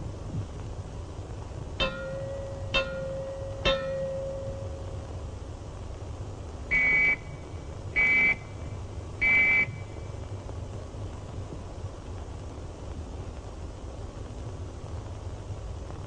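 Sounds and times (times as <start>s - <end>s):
whistle blasts: 6.7s - 7.4s, 8.0s - 8.5s, 9.2s - 9.9s.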